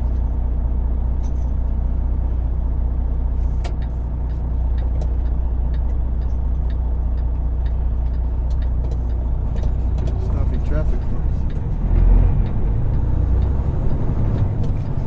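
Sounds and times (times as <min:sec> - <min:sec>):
diesel truck engine drone: 0:00.0 - 0:15.0
road noise: 0:00.0 - 0:15.0
light clicks in cab: 0:03.5 - 0:11.7.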